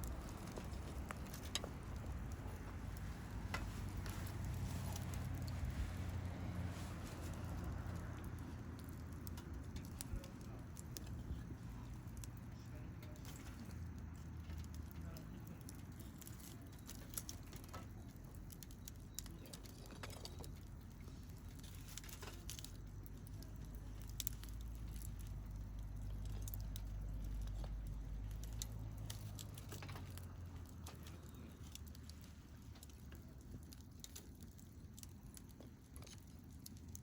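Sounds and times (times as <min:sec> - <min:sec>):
low rumble: 0:00.0 - 0:12.9
campfire crackling and popping: 0:00.0 - 0:37.0.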